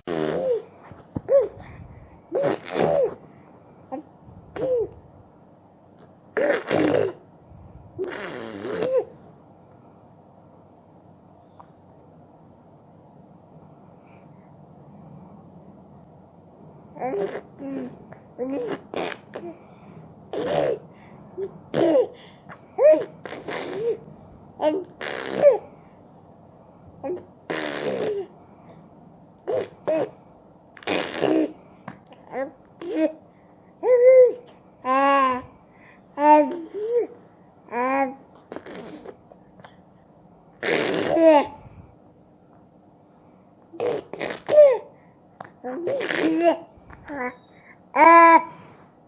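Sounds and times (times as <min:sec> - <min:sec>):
baby vocalizing: 0:00.0 - 0:01.7, 0:02.3 - 0:03.2, 0:06.4 - 0:07.2, 0:08.0 - 0:09.2, 0:17.0 - 0:19.6, 0:20.3 - 0:25.8, 0:27.0 - 0:28.4, 0:29.4 - 0:30.2, 0:30.8 - 0:33.2, 0:36.2 - 0:39.2, 0:40.6 - 0:41.8, 0:43.8 - 0:45.0, 0:45.6 - 0:48.6
baby squealing and huffing: 0:24.8 - 0:25.7, 0:43.8 - 0:44.9.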